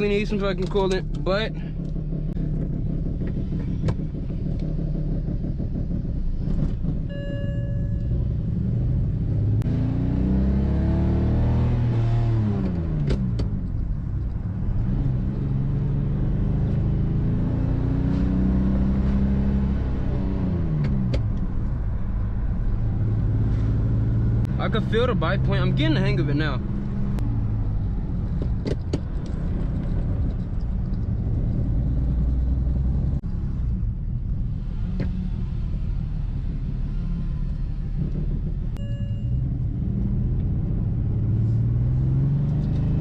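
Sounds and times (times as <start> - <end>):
car engine revving through gears: 0.3 - 43.0
brief beep: 7.1 - 8.3, 38.8 - 39.4.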